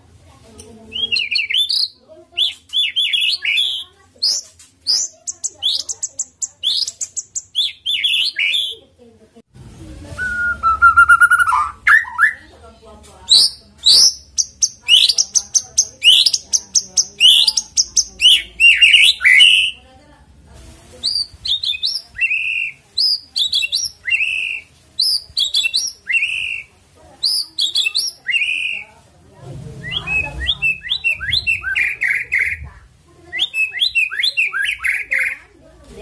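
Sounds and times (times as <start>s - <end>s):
bird singing whistled notes: 10.2s - 12.4s, 13.3s - 19.8s, 21.1s - 28.8s, 29.8s - 32.7s, 33.3s - 35.4s.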